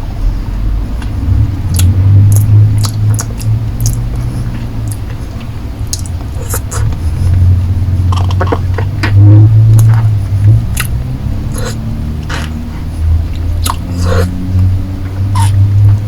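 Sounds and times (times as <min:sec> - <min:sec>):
steady low hum: 0:00.0 - 0:16.0
lips and tongue licking lollipop: 0:01.7 - 0:05.1, 0:05.9 - 0:07.3, 0:10.7 - 0:14.4, 0:15.3 - 0:15.6
wet mouth smacks and clicks: 0:01.7 - 0:05.2, 0:05.9 - 0:07.0, 0:08.1 - 0:10.0, 0:10.7 - 0:12.6, 0:13.3 - 0:14.7, 0:15.3 - 0:15.6.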